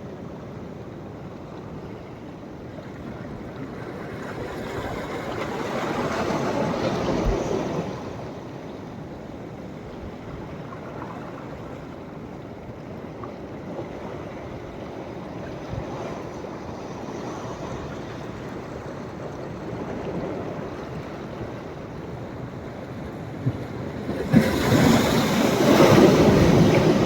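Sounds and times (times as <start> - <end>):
small waves washing: 14.4 - 27.0
wave breaking: 23.9 - 27.0.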